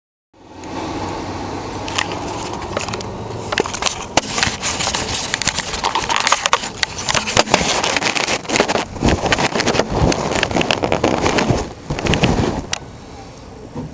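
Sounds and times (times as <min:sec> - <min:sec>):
diesel engine drone: 0:00.4 - 0:13.9
engine clicks and knocks: 0:01.9 - 0:12.8.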